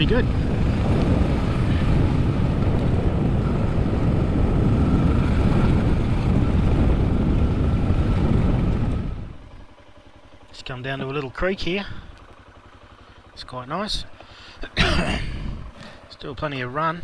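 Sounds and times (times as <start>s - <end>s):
wind rush on microphone: 0.0s - 9.7s, 14.8s - 15.9s
motorcycle engine running: 0.0s - 17.0s.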